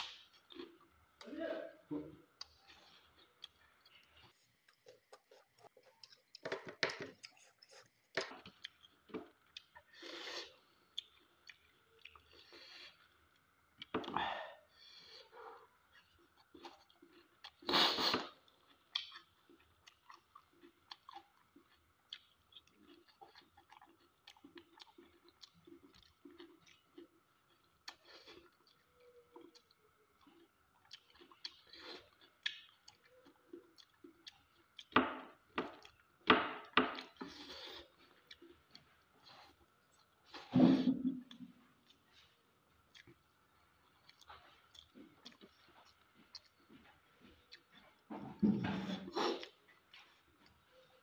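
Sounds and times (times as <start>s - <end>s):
person chewing food: 0.0s - 1.3s, 2.3s - 51.0s.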